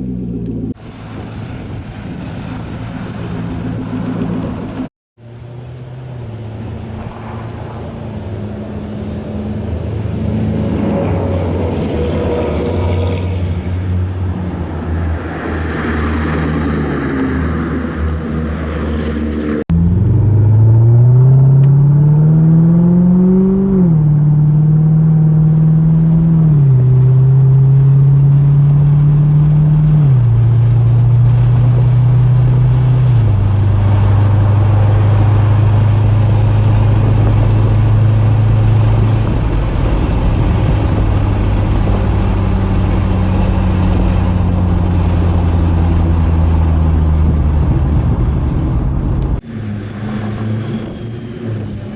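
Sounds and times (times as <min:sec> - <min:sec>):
car engine accelerating: 0:00.0 - 0:51.9.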